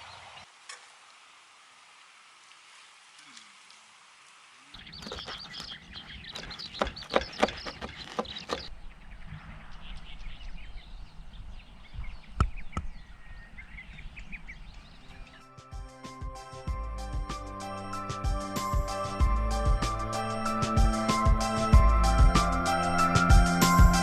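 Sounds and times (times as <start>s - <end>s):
birds chirping: 4.8s - 24.0s
sharp clicks: 4.9s - 8.7s.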